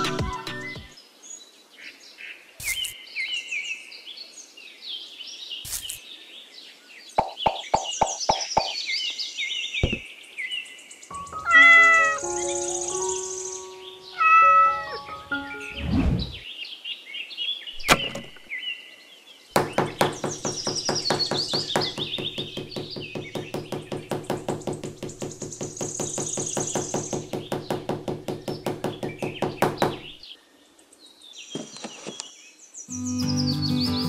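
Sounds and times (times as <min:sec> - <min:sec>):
birds chirping: 0:05.0 - 0:34.0
hammer tapping wooden sticks: 0:07.2 - 0:08.8, 0:19.6 - 0:30.1.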